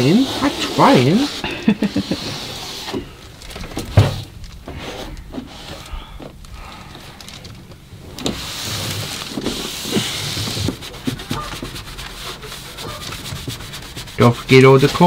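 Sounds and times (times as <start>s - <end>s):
cloth rubbing on wooden walls: 0.0s - 15.0s.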